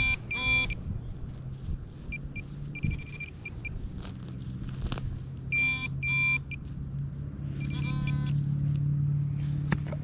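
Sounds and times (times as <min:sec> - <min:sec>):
metal detector beeping: 0:00.0 - 0:00.9, 0:02.1 - 0:03.9, 0:05.5 - 0:06.6, 0:07.5 - 0:08.5.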